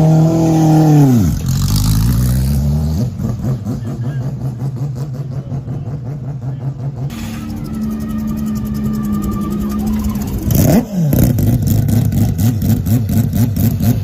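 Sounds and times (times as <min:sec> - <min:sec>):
race car engine revving and idling: 0:00.0 - 0:14.0.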